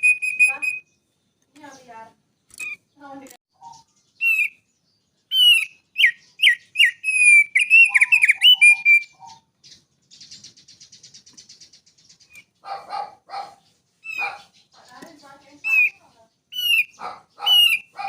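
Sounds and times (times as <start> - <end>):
songbird whistling: 0.0 - 1.1, 2.5 - 2.9, 3.6 - 12.6, 14.0 - 18.0
harsh low bird notes: 0.0 - 18.0
high bird trill: 0.0 - 18.0.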